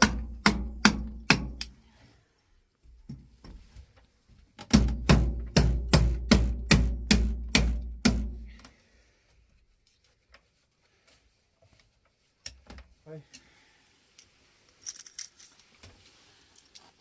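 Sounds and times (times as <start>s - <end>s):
hammer driving nails into wood: 0.0s - 1.8s, 4.6s - 8.5s.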